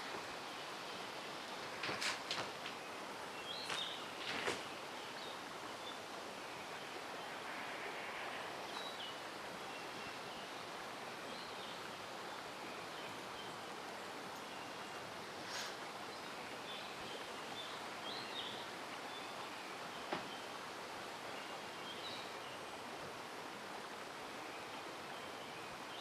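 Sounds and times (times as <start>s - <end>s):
stream flowing: 0.0s - 26.0s.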